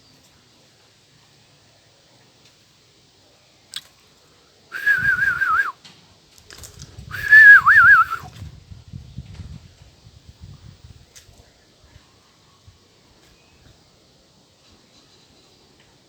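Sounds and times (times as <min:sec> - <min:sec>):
high warbling whistles: 0:04.8 - 0:05.7, 0:07.1 - 0:08.3.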